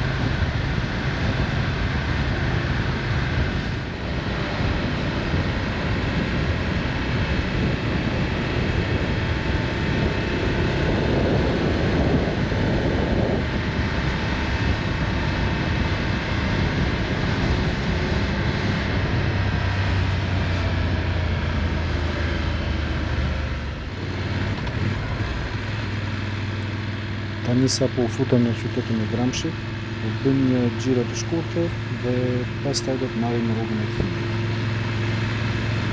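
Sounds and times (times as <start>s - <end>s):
motorcycle engine drone: 0.0s - 35.9s
wind rushing over microphone: 0.0s - 35.9s.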